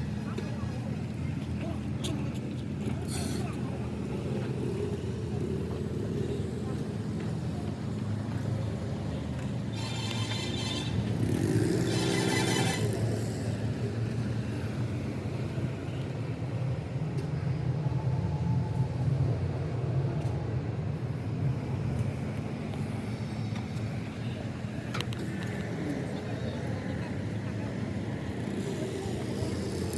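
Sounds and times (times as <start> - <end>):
higher-pitched engine revs: 9.8 - 13.5.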